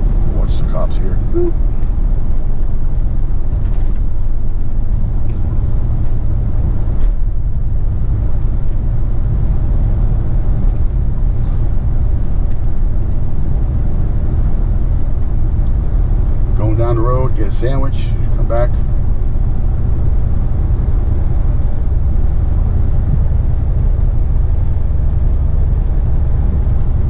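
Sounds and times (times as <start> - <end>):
road noise: 0.0 - 27.0
truck engine rumble: 0.0 - 27.0.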